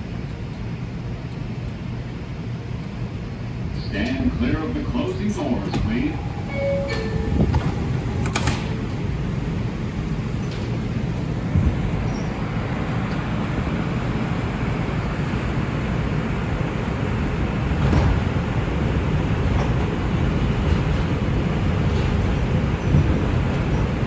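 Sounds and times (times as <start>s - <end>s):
wheels rumbling on rail: 0.0s - 24.0s
track clunks: 3.7s - 15.0s.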